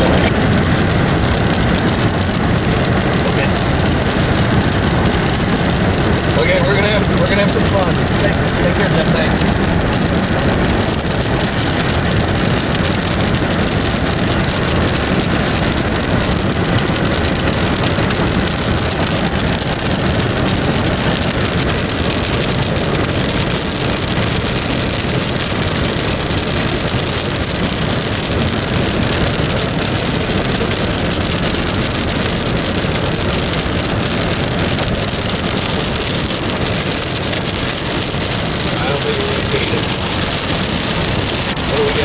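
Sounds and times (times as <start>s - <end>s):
rain on a car: 0.0s - 42.0s
road noise inside a car: 0.0s - 42.0s.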